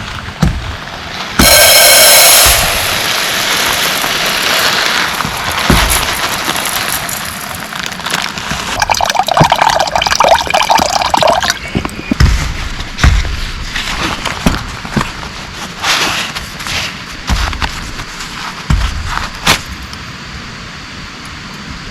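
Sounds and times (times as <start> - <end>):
water pouring and splashing: 1.4 - 15.8
dull knocks: 10.8 - 15.3, 17.2 - 19.7.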